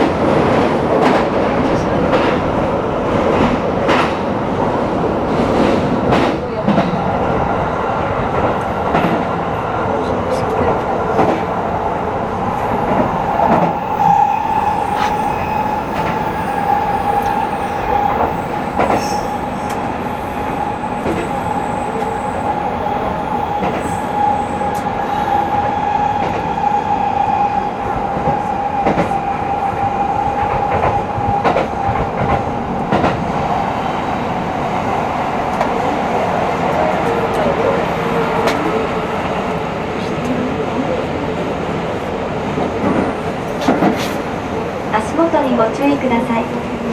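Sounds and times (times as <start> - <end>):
high train whine: 0.0 - 46.9
train wheels rumbling on rail: 0.0 - 46.9
rail joint clicks: 3.2 - 25.0.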